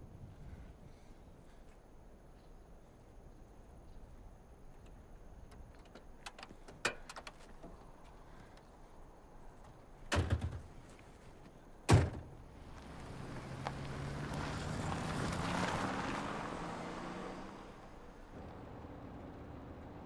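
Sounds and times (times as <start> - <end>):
car engine revving: 12.8 - 20.0.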